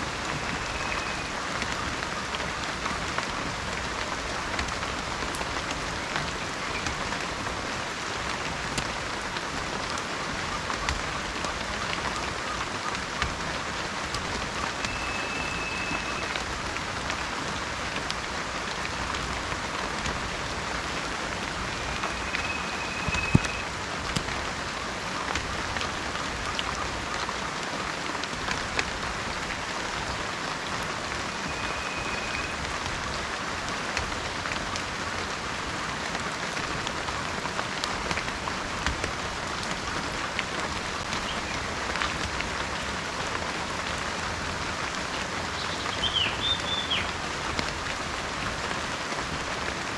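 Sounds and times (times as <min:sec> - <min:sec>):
heavy rain falling: 0:00.0 - 0:49.9
faint high whistled note: 0:14.8 - 0:16.4, 0:21.7 - 0:23.7, 0:31.4 - 0:32.6.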